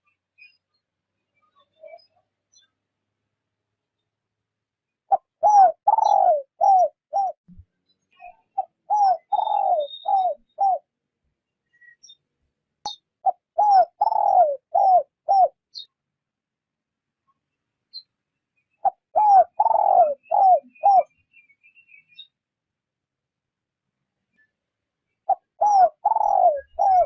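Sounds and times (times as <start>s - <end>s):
dove cooing: 5.1s - 7.4s, 8.6s - 10.9s, 13.2s - 15.6s, 18.8s - 21.1s, 25.3s - 27.0s.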